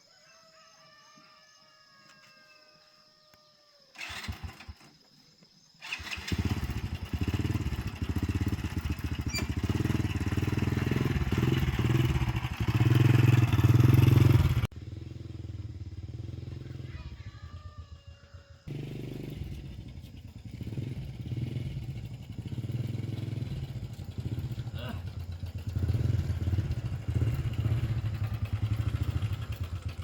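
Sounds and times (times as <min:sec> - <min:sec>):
small petrol engine running: 0:04.0 - 0:04.9, 0:05.8 - 0:30.0
small petrol engine cranking: 0:04.0 - 0:05.0, 0:05.8 - 0:14.7, 0:18.6 - 0:30.0.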